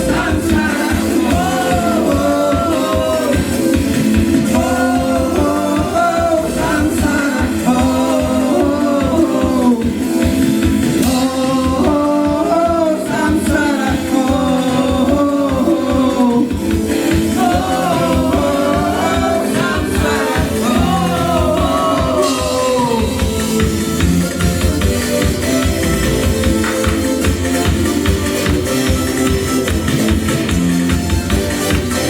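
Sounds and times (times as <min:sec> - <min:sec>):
person singing: 0:00.0 - 0:10.3, 0:10.9 - 0:24.2
live band playing: 0:00.0 - 0:32.0
steady drum beat: 0:00.0 - 0:32.0.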